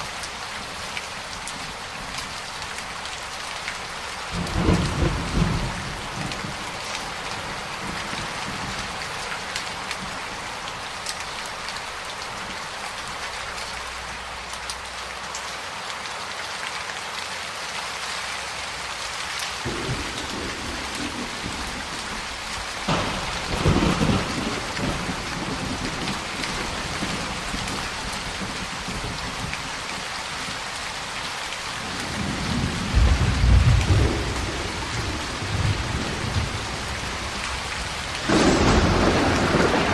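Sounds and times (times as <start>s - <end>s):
heavy rain: 0.0s - 39.9s
thunder rolling: 19.7s - 27.8s, 32.1s - 39.9s.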